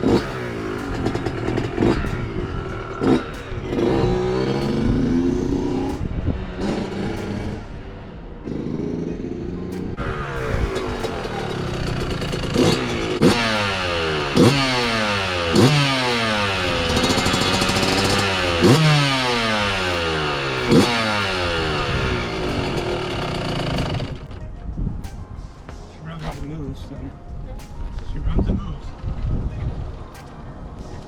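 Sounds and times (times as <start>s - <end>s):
two-stroke engine revving: 0.0s - 24.4s.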